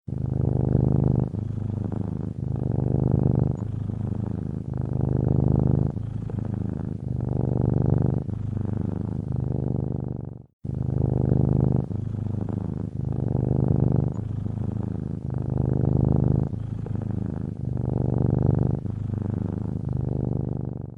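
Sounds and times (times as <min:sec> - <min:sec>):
cat purring: 0:00.0 - 0:20.9.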